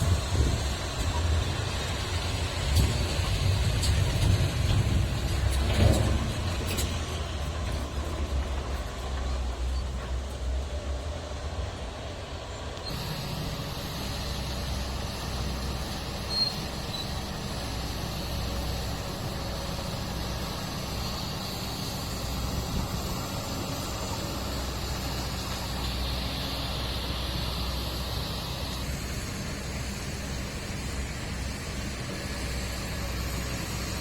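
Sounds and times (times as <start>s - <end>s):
diesel truck engine rumbling: 0.0s - 34.0s
high squeak: 16.2s - 17.2s.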